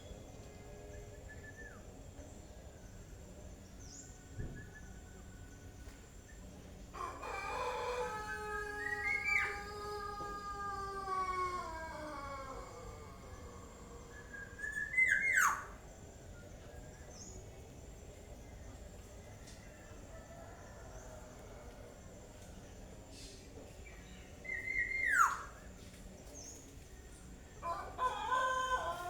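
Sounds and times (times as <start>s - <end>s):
bird calling: 8.2s - 15.8s.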